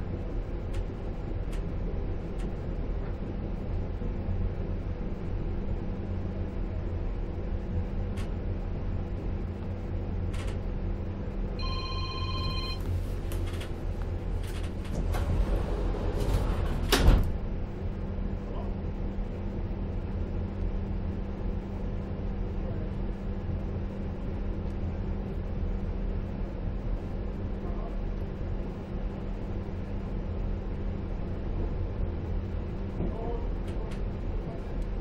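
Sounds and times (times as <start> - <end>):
electronic tone: 11.6 - 12.8
train coach rumble: 11.6 - 20.0.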